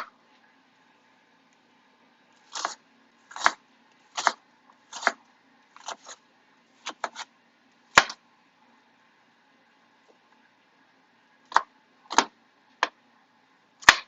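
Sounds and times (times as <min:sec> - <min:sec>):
knife chopping on cutting board: 0:02.5 - 0:05.2, 0:05.8 - 0:06.2, 0:06.8 - 0:07.3, 0:08.0 - 0:08.2, 0:11.5 - 0:12.3.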